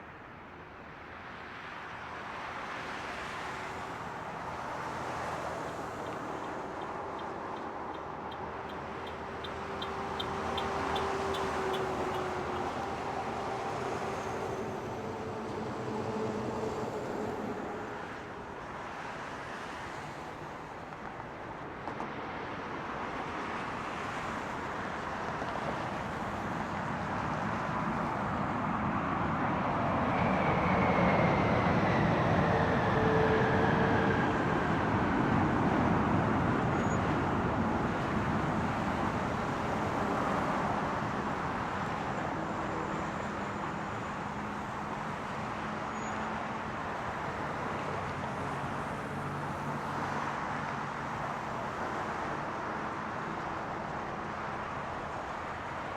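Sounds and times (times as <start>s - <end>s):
jet engines passing: 29.2s - 37.2s.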